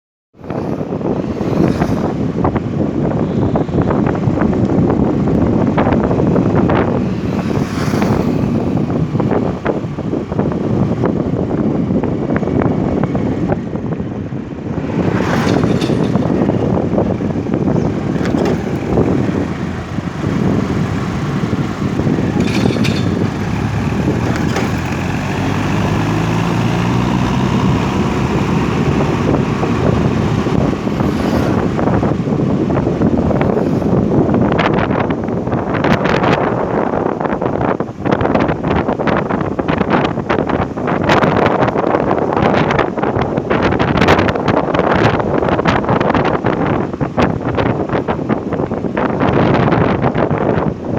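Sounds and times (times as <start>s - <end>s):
wind buffeting microphone: 0.4s - 50.9s
vehicle engine running: 4.4s - 34.4s.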